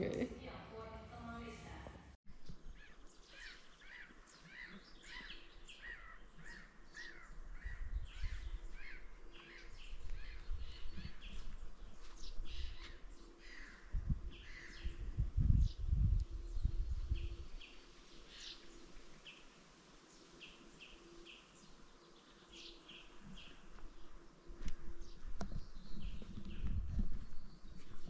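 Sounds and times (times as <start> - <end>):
birds calling: 2.4 - 15.1.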